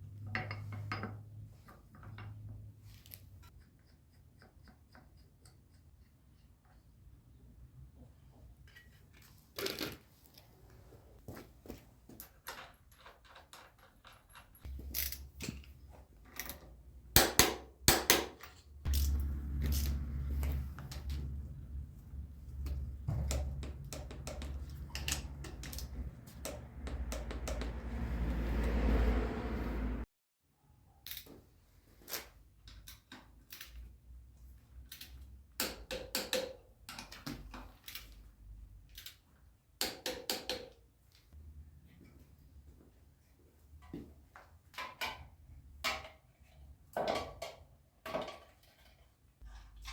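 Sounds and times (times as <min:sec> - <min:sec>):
metal tools clicking and knocking: 0:00.0 - 0:06.8, 0:12.2 - 0:21.4, 0:22.6 - 0:27.8
knocks and clicks of hard objects: 0:22.6 - 0:27.9.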